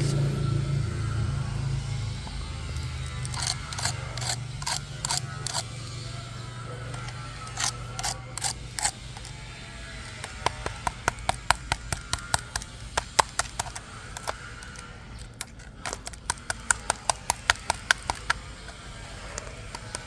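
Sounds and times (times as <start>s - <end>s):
sharp clicks in quick runs: 2.7s - 5.7s, 10.0s - 20.0s.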